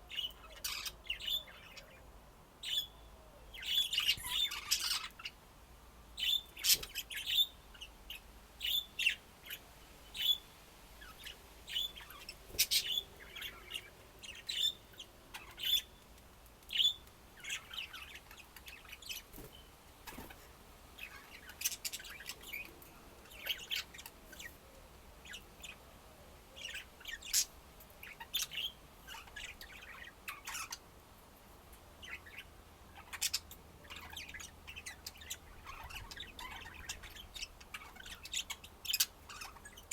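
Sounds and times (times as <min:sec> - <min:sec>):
budgerigars chirping: 0:00.1 - 0:02.0, 0:03.6 - 0:05.4, 0:11.0 - 0:15.9, 0:32.0 - 0:39.9.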